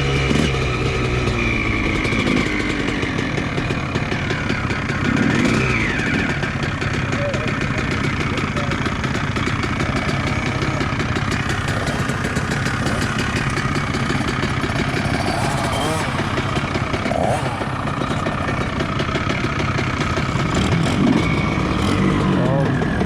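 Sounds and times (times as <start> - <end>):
motocross bike engine idling: 0.0 - 23.0
indistinct voices: 7.0 - 23.0.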